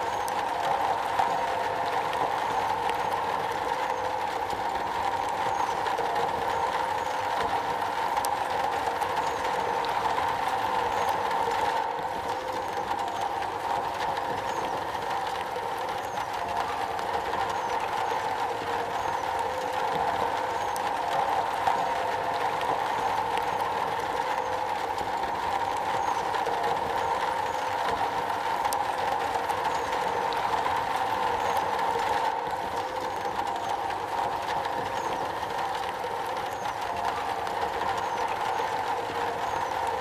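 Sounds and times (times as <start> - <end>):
rain on a metal roof: 0.0 - 40.0.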